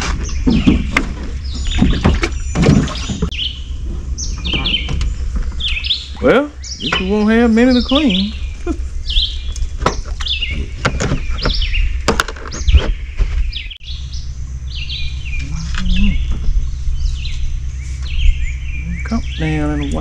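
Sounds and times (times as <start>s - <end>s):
songbirds chirping: 0.0s - 20.0s
steady low rumble: 0.0s - 20.0s.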